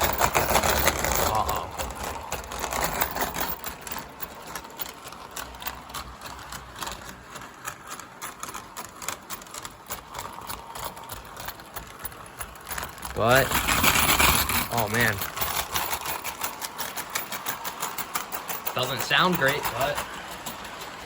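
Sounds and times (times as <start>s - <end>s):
model train motor straining: 0.0s - 21.0s
wheels clicking on track: 0.0s - 21.0s.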